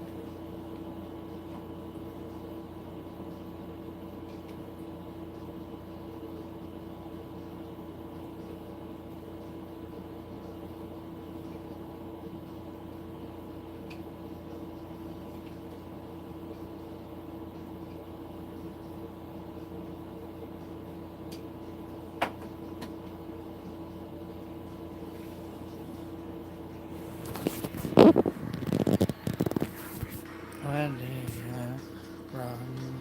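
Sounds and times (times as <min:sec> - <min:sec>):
steady mechanical hum: 0:00.0 - 0:33.0
rustling handling noise: 0:26.8 - 0:31.8.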